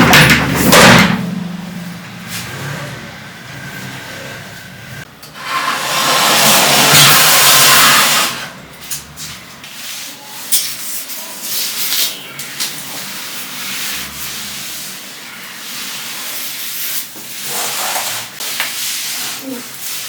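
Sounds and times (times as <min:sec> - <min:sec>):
hand scrubbing a surface: 0:09.2 - 0:20.0.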